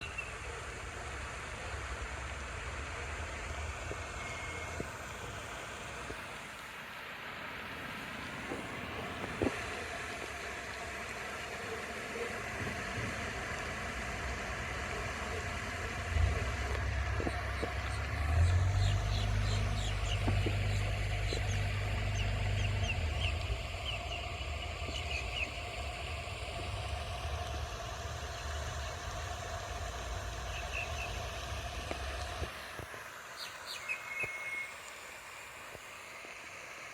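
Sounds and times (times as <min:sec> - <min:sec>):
fountain spray splashing: 0:00.0 - 0:36.9
small birds chirping: 0:15.8 - 0:26.0, 0:30.5 - 0:31.2.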